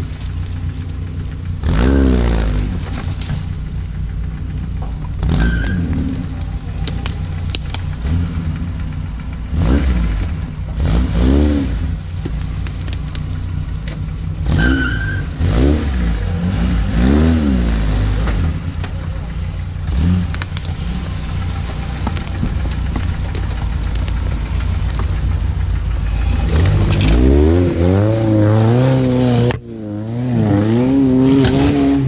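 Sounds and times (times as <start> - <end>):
off-road vehicle engine revving: 0.0 - 32.0
short high squeal: 14.6 - 15.3.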